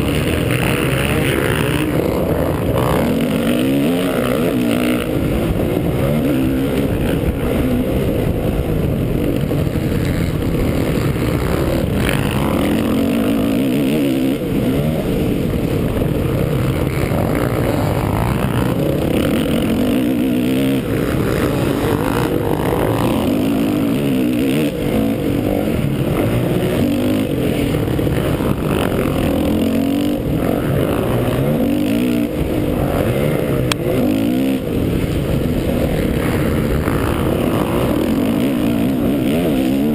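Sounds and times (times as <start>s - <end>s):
motocross bike engine revving: 0.0s - 39.9s
wind and track noise: 0.0s - 39.9s.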